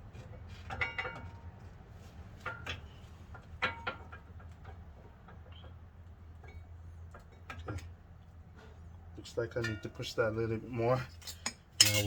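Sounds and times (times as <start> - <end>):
light metallic clinks: 11.2 - 12.0.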